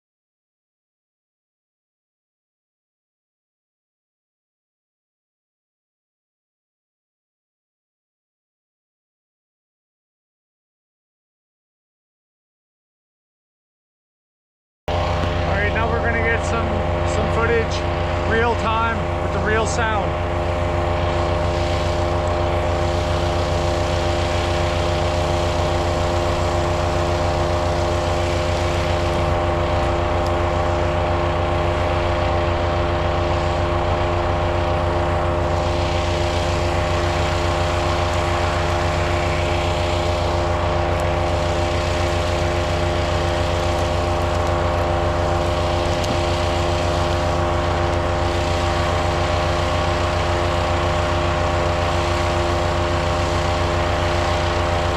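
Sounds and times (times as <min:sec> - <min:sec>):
wood chipper engine droning: 0:14.9 - 0:54.9.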